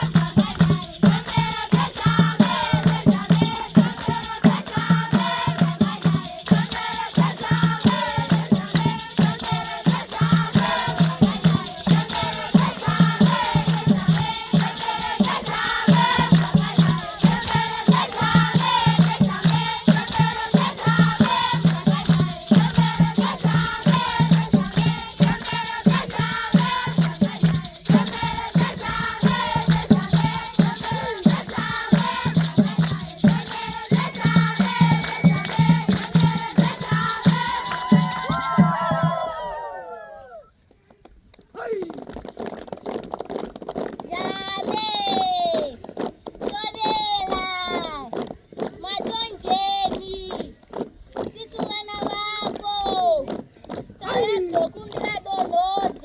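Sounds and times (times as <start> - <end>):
children singing: 0.0 - 38.7
shaken rattles: 0.0 - 39.0, 41.4 - 56.0.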